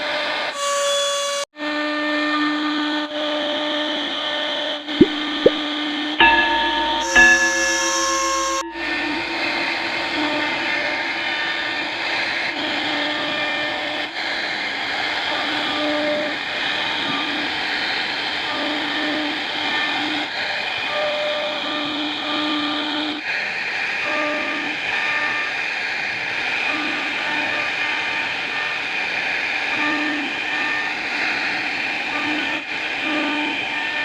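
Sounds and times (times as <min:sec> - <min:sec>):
cnc router spindle whine: 0:26.7 - 0:34.0.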